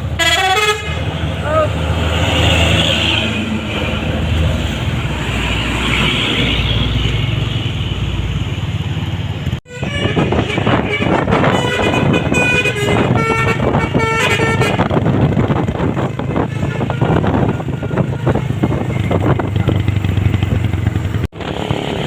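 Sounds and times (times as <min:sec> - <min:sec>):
road noise: 0:00.0 - 0:22.0
truck musical horn: 0:00.1 - 0:01.2, 0:09.7 - 0:15.1, 0:16.1 - 0:18.4.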